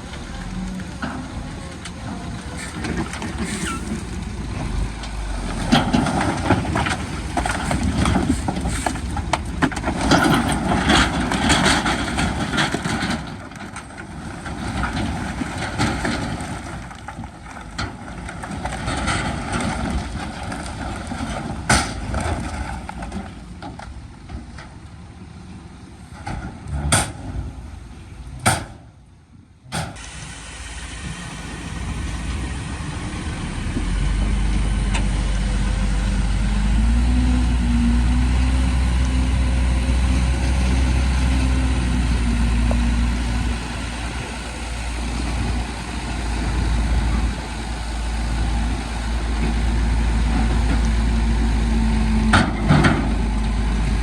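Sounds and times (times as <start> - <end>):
heavy machinery diesel engines: 0.0 - 54.0.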